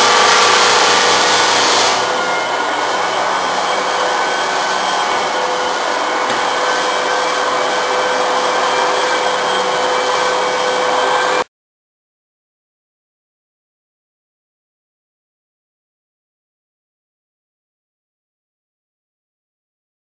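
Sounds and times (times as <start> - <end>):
floor sander whirring: 0.0 - 11.5.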